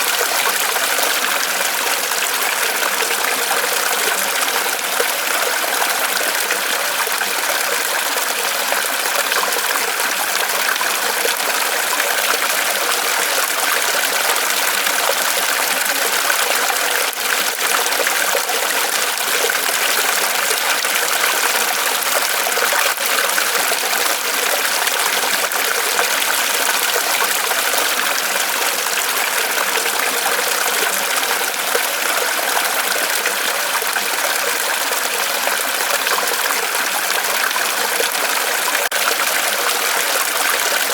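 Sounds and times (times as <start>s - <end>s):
small waterfall splashing: 0.0s - 40.9s.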